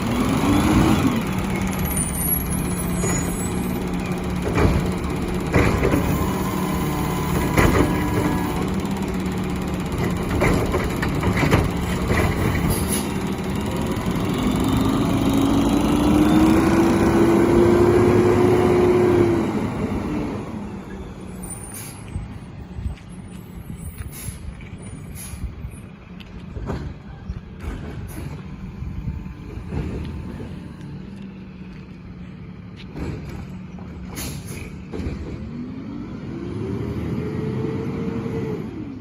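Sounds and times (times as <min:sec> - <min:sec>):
recycling truck engine and hydraulics whining: 0:00.0 - 0:39.0
clunks and knocks: 0:04.0 - 0:08.8, 0:09.8 - 0:13.2, 0:26.3 - 0:28.6, 0:29.3 - 0:30.7, 0:32.7 - 0:35.7.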